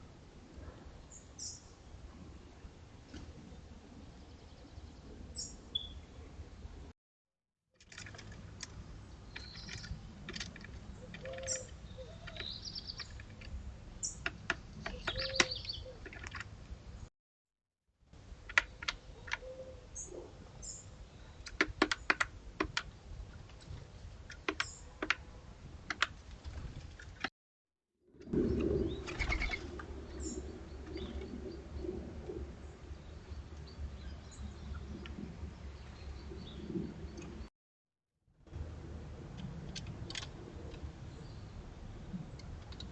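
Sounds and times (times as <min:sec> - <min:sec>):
small birds chirping: 0:01.0 - 0:01.7, 0:04.1 - 0:06.2, 0:08.9 - 0:17.1, 0:23.6 - 0:25.0, 0:28.3 - 0:37.5
sharp irregular clicks and taps: 0:14.2 - 0:16.5, 0:18.5 - 0:19.4, 0:21.4 - 0:22.9, 0:24.3 - 0:25.2, 0:25.9 - 0:26.1.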